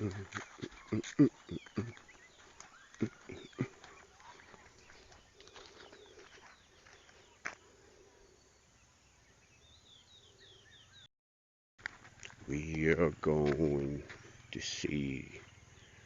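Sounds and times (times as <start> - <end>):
short falling bird calls: 0.0 - 8.6
faint birds chirping: 0.0 - 11.1, 11.8 - 16.0.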